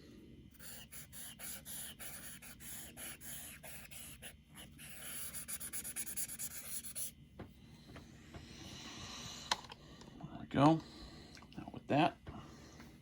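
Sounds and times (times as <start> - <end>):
eraser rubbing on paper: 0.6 - 7.2.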